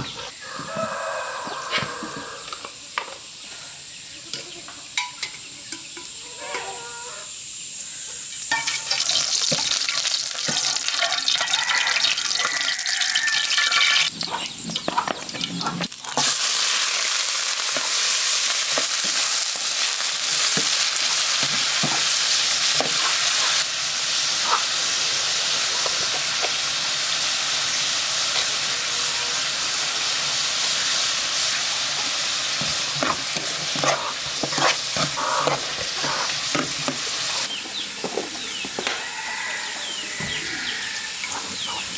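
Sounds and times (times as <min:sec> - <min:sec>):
food sizzling in a pan: 0:08.3 - 0:14.1, 0:15.8 - 0:37.6
stirring clicks and scrapes: 0:32.6 - 0:37.1.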